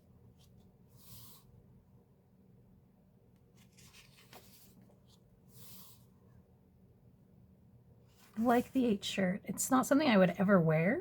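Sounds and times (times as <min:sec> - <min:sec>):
soft swishes of photo paper: 0:00.4 - 0:01.6, 0:03.5 - 0:06.1, 0:08.1 - 0:09.0.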